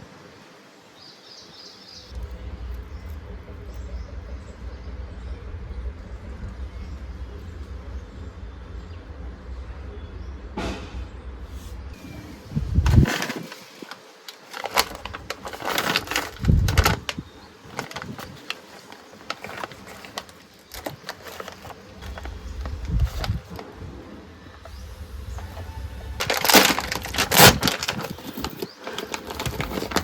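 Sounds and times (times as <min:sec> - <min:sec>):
snack packet crackling: 0:12.8 - 0:23.8, 0:24.6 - 0:30.0.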